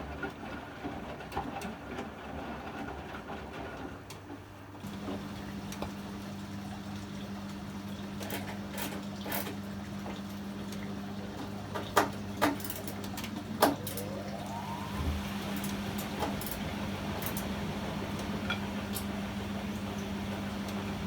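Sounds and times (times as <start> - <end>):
washing machine motor hum: 0.1 - 21.0
washing machine drum clunks: 7.5 - 21.0
short rising whine: 13.6 - 17.4.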